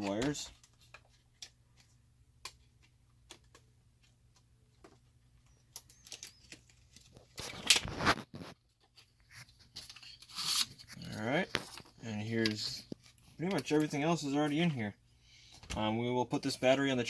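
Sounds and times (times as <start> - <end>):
packaging rustle: 5.8 - 8.6.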